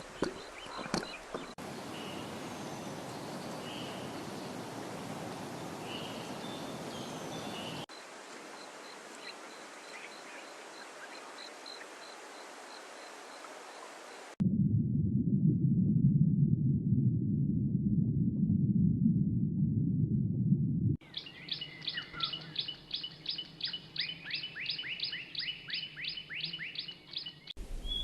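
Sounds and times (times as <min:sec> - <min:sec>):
steady outdoor hiss: 0:00.0 - 0:14.4, 0:21.0 - 0:28.0
short bird chirps: 0:21.1 - 0:28.0.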